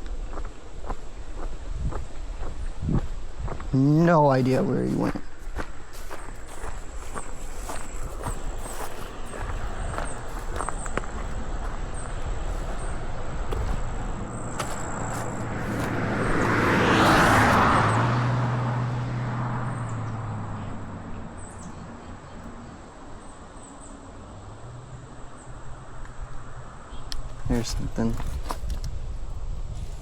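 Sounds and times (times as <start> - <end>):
car driving past: 6.6 - 21.7.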